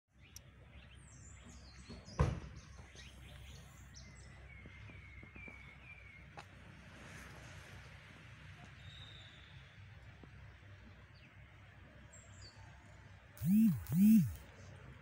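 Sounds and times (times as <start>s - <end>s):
birds chirping: 13.4s - 14.4s.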